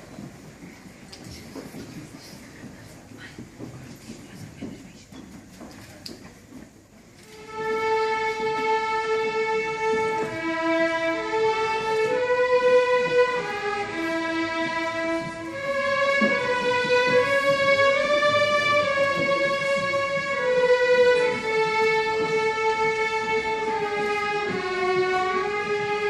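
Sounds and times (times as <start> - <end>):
violin slow melody: 7.2 - 26.0.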